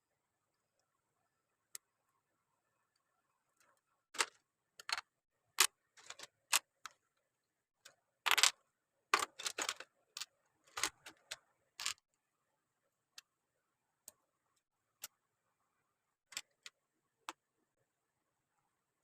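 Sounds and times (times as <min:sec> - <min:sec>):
plastic parts rattling: 0:06.0 - 0:06.9, 0:08.3 - 0:08.5, 0:09.2 - 0:12.0
plastic bricks clicking together: 0:08.3 - 0:08.5.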